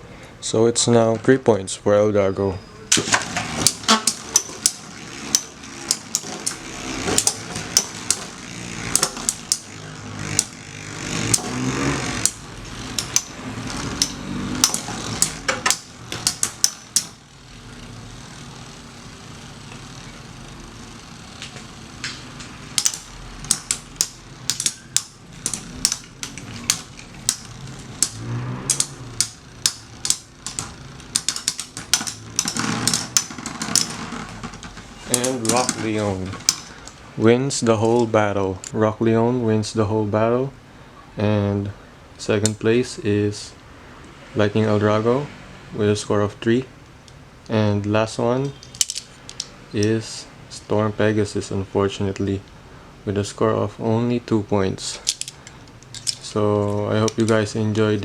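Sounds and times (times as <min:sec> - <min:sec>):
spinning tops whirring: 0:02.8 - 0:38.7, 0:54.8 - 0:58.0
metal spinning tops clashing: 0:02.9 - 0:37.0, 0:48.4 - 0:50.0, 0:54.9 - 0:58.0.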